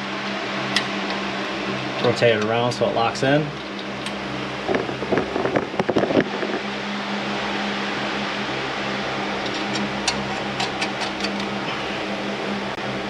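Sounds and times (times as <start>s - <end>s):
fan humming: 0.0s - 13.0s.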